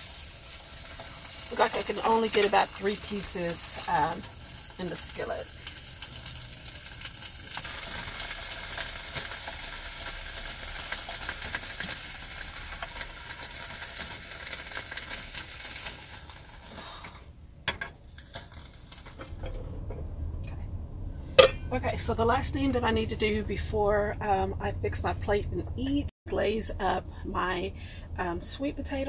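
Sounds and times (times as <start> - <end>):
ham sizzling in a skillet: 0.0 - 19.4
low hum: 19.0 - 29.0.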